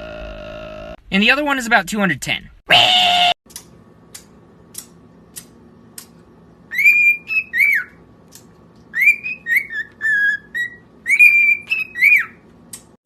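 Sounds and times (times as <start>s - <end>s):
parrot whistling a tune: 6.7s - 8.0s, 8.9s - 12.4s.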